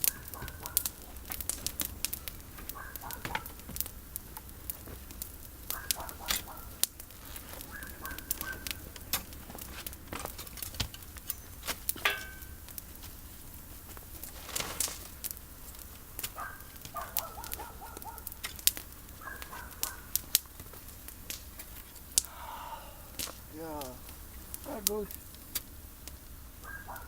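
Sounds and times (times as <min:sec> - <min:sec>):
bird calling: 0:00.0 - 0:03.9, 0:05.6 - 0:09.1, 0:16.4 - 0:20.3, 0:21.7 - 0:25.3, 0:26.5 - 0:27.0
campfire crackling: 0:00.0 - 0:27.0.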